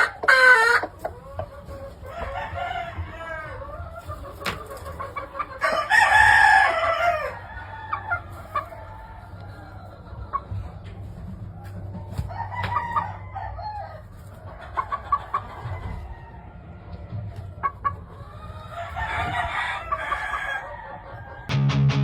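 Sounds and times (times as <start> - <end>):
roosters crowing: 0.0 - 1.0, 1.7 - 4.0, 5.3 - 10.8, 11.4 - 21.6
chickens clucking: 0.0 - 21.6.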